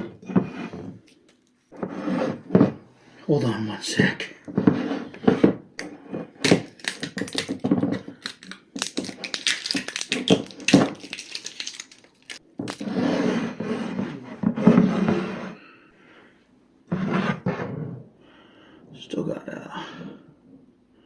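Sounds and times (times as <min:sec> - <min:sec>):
tape being peeled off packaging: 0:06.4 - 0:12.8.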